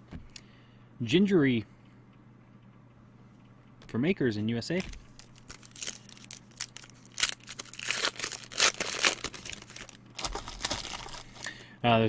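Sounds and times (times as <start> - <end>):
card pack wrapper crinkling and tearing: 4.8 - 11.5.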